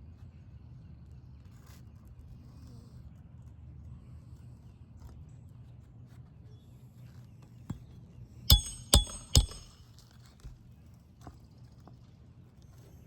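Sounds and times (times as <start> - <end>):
hammer blows on nail: 8.5 - 9.8.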